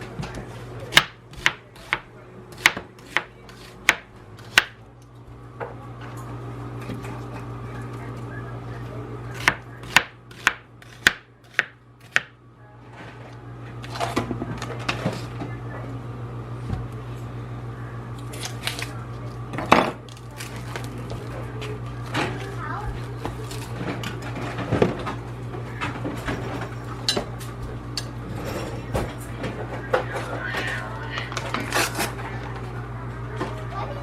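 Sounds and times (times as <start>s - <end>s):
knife chopping on cutting board: 0.9s - 4.8s, 9.4s - 12.3s.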